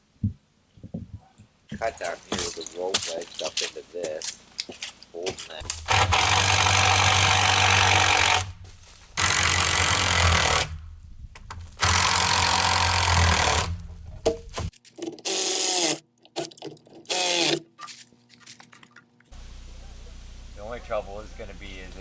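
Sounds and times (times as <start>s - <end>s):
chainsaw cutting into tree trunk: 5.8s - 8.5s, 11.8s - 13.7s, 15.2s - 16.0s, 17.1s - 17.7s.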